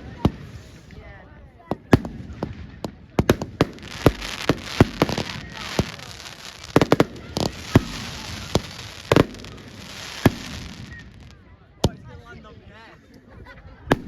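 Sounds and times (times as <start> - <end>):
fireworks bangs: 1.7 - 11.4
fireworks crackling: 1.7 - 11.5.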